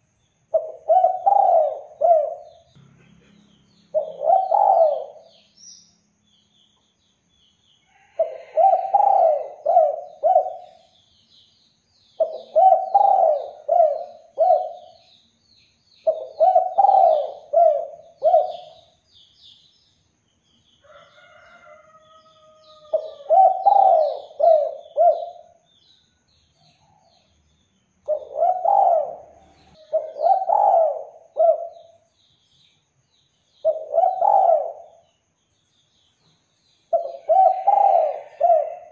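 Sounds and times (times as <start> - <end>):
faint high chirps of small birds: 0.0 - 38.9
dove cooing: 0.5 - 2.7, 3.9 - 5.4, 8.2 - 10.9, 12.2 - 15.0, 16.0 - 18.9, 22.7 - 25.6, 28.1 - 32.0, 33.6 - 35.0, 36.9 - 38.9.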